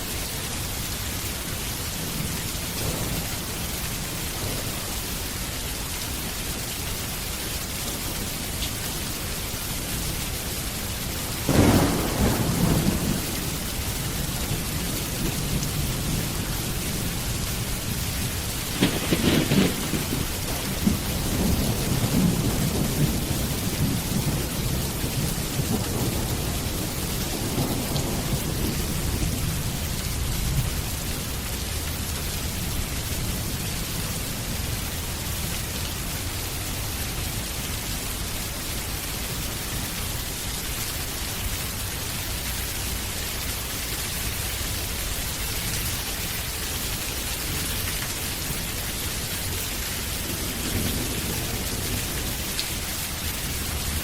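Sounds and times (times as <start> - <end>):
steady rain: 0.0 - 54.0
low roll of thunder: 2.0 - 5.3, 11.4 - 31.1, 49.5 - 54.0.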